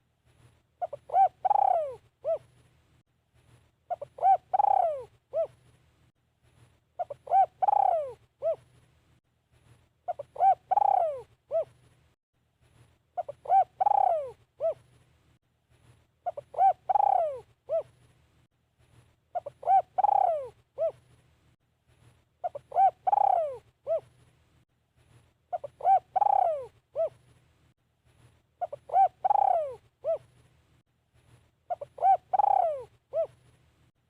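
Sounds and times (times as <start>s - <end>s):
dove cooing: 0.8s - 2.5s, 3.9s - 5.6s, 7.0s - 8.7s, 10.1s - 11.8s, 13.2s - 14.9s, 16.2s - 18.0s, 19.3s - 21.0s, 22.4s - 24.1s, 25.5s - 27.2s, 28.6s - 30.3s, 31.7s - 33.4s.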